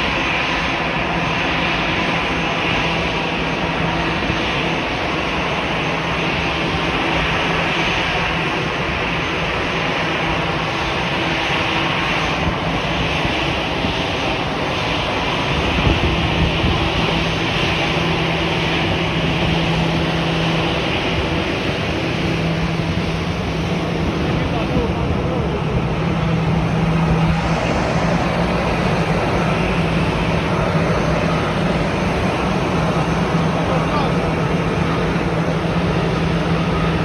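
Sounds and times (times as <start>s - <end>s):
aircraft engine rushing: 0.0s - 37.0s.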